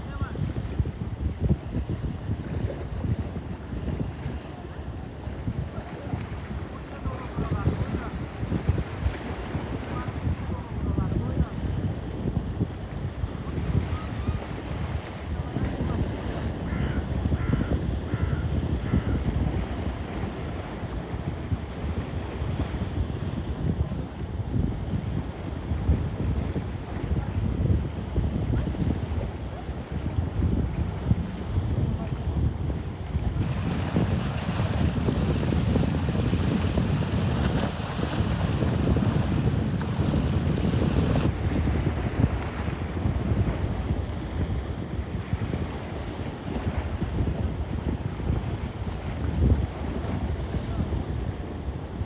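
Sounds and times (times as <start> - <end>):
sea waves: 0.0 - 11.6, 12.8 - 22.8, 33.1 - 44.4
wind buffeting microphone: 0.0 - 52.0.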